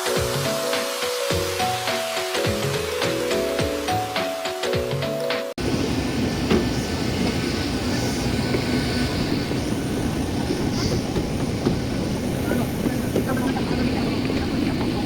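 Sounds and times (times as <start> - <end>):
rumbling aircraft cabin noise: 5.6 - 15.0.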